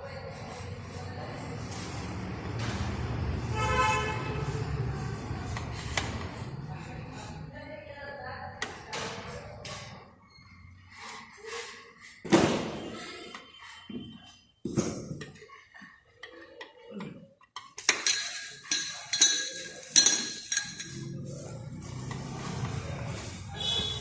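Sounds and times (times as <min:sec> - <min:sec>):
metal clinking and knocking: 0:17.4 - 0:21.2.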